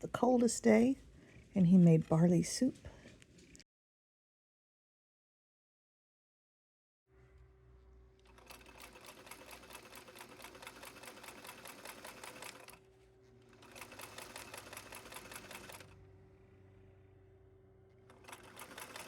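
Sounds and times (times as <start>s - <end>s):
sewing machine stitching: 8.3s - 12.8s, 13.5s - 16.0s, 18.1s - 19.0s.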